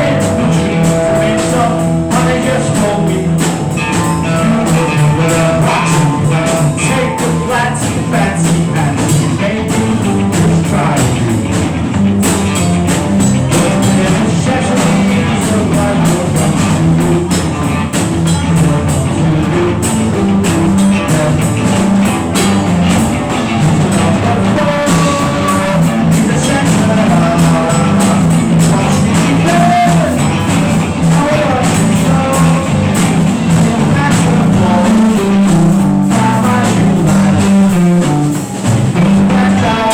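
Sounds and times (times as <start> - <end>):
drum kit: 0.0 - 39.9
electric guitar: 0.0 - 39.9
low pitched bass part: 0.0 - 39.9.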